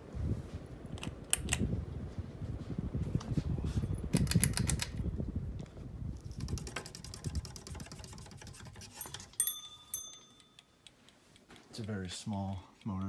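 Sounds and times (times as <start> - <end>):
ceiling fan running: 0.0 - 13.0
rapid clicking: 6.3 - 9.4.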